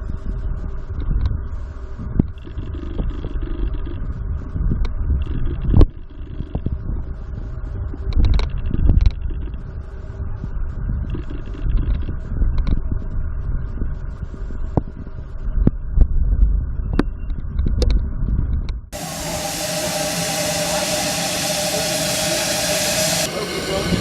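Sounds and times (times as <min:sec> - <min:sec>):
loud steady hiss: 0:19.0 - 0:24.0.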